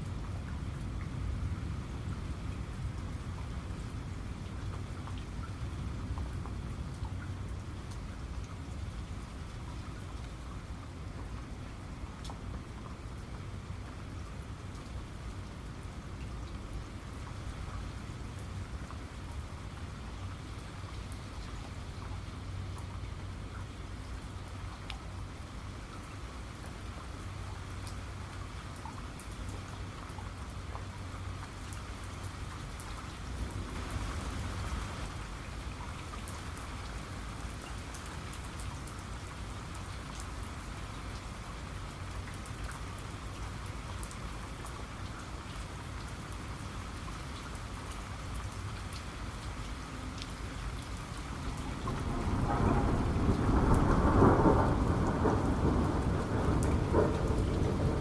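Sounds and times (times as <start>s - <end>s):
steady rain: 0.0s - 58.0s
thunder rumble: 51.7s - 58.0s.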